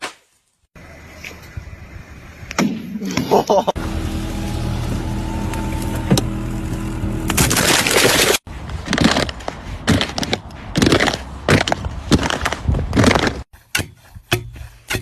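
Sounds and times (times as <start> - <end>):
steady mechanical hum: 3.8 - 7.6
irregular crunching and cracking: 7.3 - 13.5.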